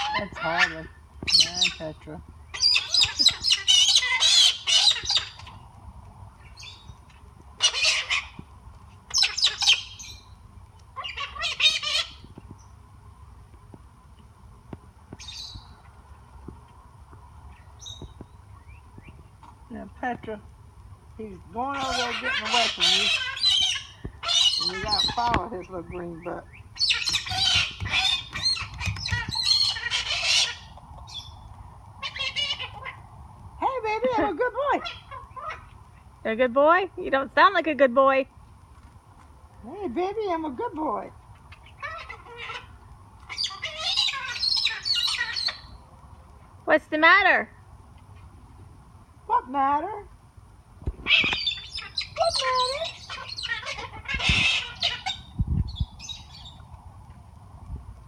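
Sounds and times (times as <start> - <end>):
parrots squawking: 0.0 - 5.6, 7.6 - 8.4, 9.1 - 10.2, 11.0 - 12.2, 21.5 - 26.1, 26.8 - 31.2, 32.0 - 33.1, 33.9 - 35.8, 41.4 - 45.8, 51.0 - 55.4.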